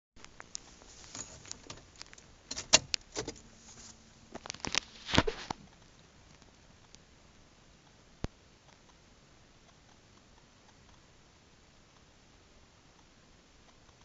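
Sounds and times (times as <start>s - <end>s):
handling clicks and knocks: 0.3s - 4.8s.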